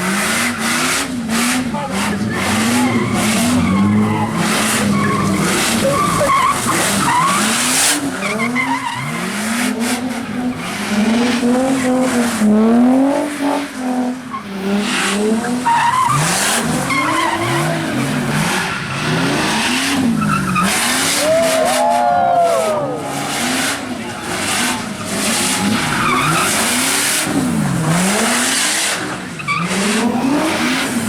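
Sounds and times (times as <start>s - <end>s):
car engine revving: 0.0s - 31.0s
tyres skidding on wet pavement: 0.0s - 31.0s
tyre squeal: 2.3s - 9.3s.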